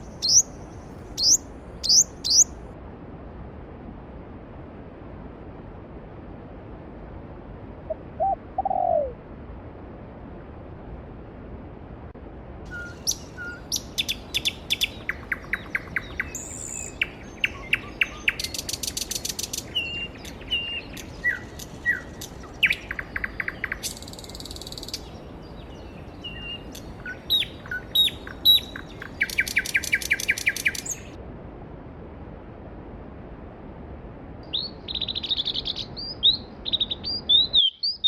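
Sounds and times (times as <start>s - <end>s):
songbirds chirping and trilling: 0.0s - 2.6s, 12.7s - 31.2s, 34.5s - 38.0s.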